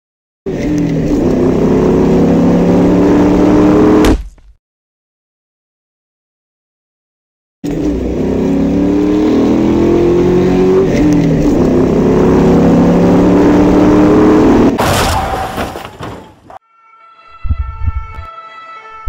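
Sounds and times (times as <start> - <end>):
car engine accelerating: 0.5 - 4.0, 7.6 - 14.8.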